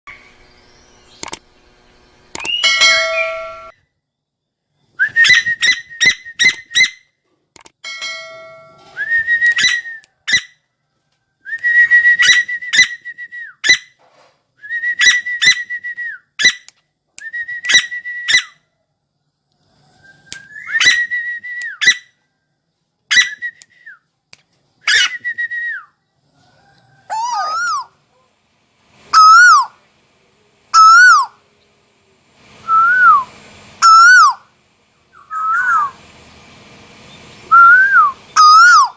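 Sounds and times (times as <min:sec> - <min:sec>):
koel whistled calls: 0:29.1 - 0:29.8, 0:30.8 - 0:31.4, 0:32.7 - 0:34.4, 0:35.2 - 0:36.0, 0:37.5 - 0:38.9.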